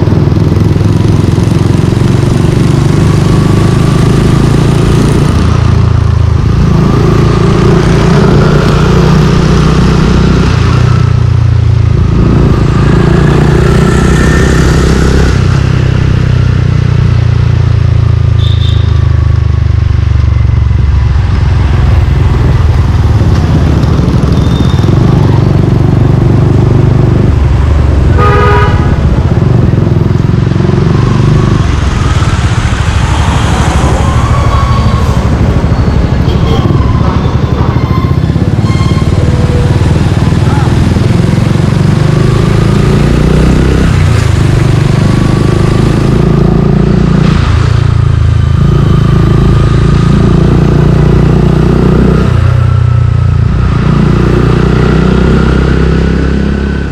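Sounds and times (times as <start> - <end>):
motorcycle engine running: 0.0 - 56.9
vehicle horn beep: 18.4 - 19.1, 24.3 - 25.0, 28.2 - 29.0, 36.2 - 39.8.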